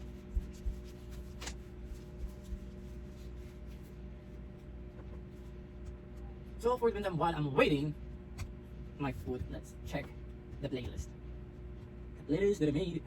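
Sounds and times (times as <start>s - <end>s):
handling knocks and rubs: 0.0s - 6.2s
appliance electrical hum: 0.0s - 13.0s.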